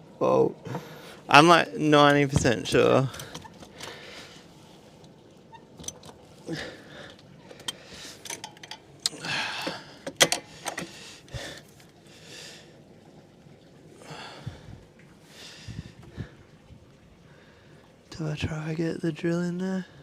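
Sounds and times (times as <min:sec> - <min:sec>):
heavy breaths of effort: 0:09.1 - 0:12.7.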